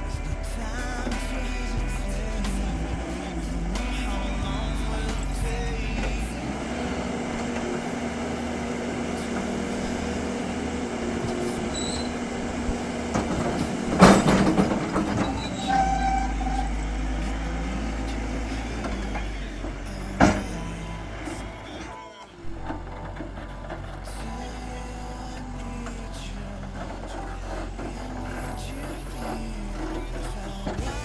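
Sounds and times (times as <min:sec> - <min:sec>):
diesel engine under load: 0:00.0 - 0:31.0
loud metal clank: 0:01.0 - 0:24.5.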